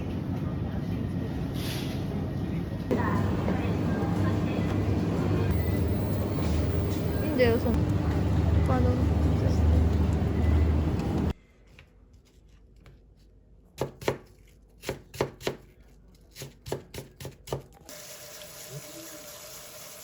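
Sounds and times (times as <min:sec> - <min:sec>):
loud street noise: 0:00.0 - 0:11.3
faint hum: 0:00.0 - 0:11.6
knife chopping on cutting board: 0:13.8 - 0:15.7.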